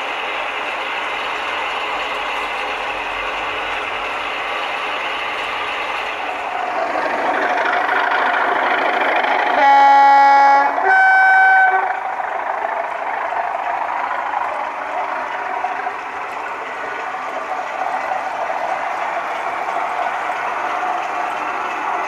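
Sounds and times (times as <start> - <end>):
model train running on track: 0.0 - 22.0
two-tone train horn: 9.5 - 12.0.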